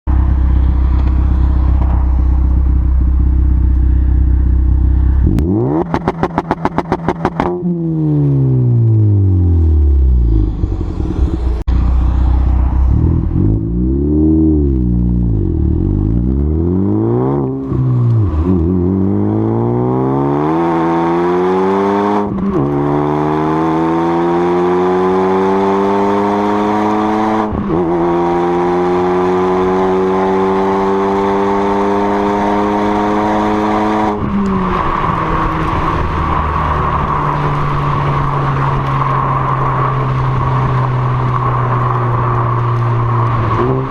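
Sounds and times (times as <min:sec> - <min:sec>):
car engine revving: 0:00.1 - 0:43.9.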